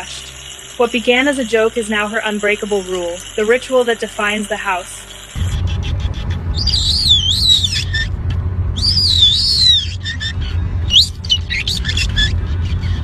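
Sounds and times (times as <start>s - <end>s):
steady low rumble: 5.1s - 13.0s
parrot whistling and squeaking: 5.4s - 8.2s, 8.8s - 13.0s.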